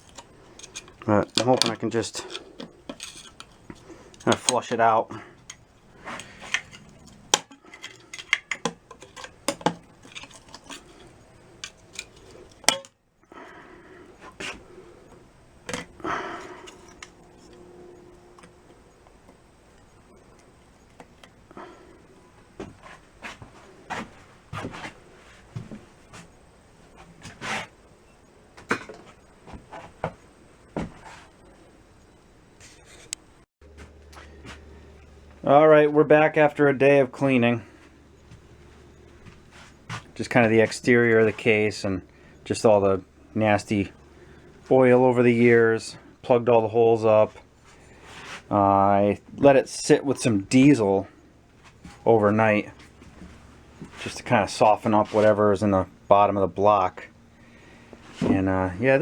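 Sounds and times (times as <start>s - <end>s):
broken piston fragments clanking: 0.0s - 13.0s, 14.2s - 21.4s
knocks and clinks on metal parts: 6.2s - 12.9s.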